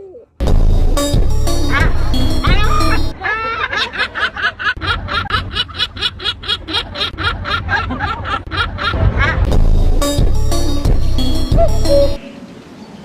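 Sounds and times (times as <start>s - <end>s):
bird rapid laughing call: 1.7s - 9.5s.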